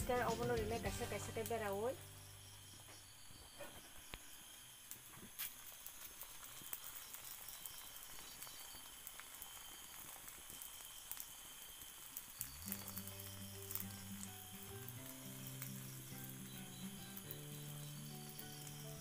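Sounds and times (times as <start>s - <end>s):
music: 0.0s - 2.6s, 12.5s - 19.0s
egg frying in oil: 4.0s - 19.0s.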